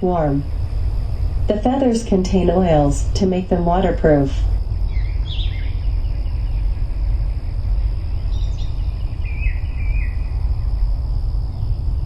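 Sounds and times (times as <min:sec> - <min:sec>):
thin high-pitched whine: 0:00.0 - 0:12.0
wind buffeting microphone: 0:00.0 - 0:12.0
faint bird chirps: 0:04.9 - 0:10.7.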